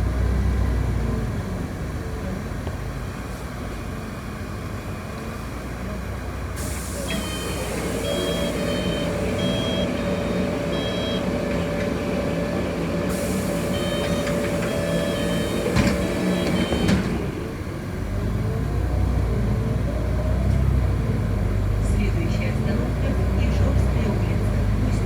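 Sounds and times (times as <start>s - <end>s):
bus engine hum: 0.0s - 25.0s
air hissing: 6.6s - 9.6s, 13.1s - 16.6s
short high warning beeps: 7.0s - 11.4s, 13.1s - 16.9s.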